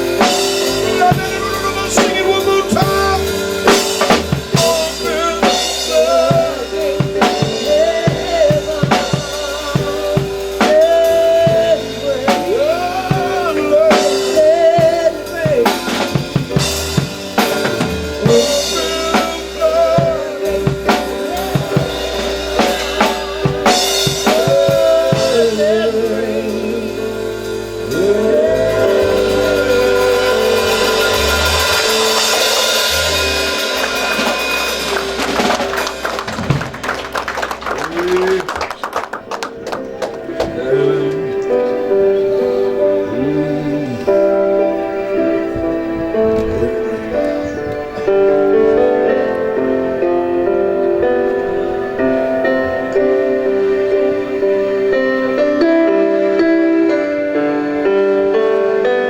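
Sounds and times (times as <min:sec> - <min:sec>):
drum kit playing: 0:00.0 - 0:59.0
held chord: 0:00.0 - 0:59.0
wavering melody line: 0:27.8 - 0:36.1.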